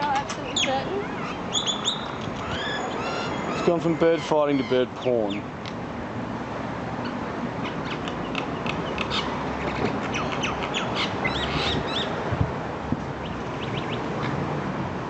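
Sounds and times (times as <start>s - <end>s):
birds squawking and chirping: 0.0s - 5.5s, 7.0s - 12.2s, 13.2s - 14.4s
steady outdoor hiss: 0.0s - 15.0s.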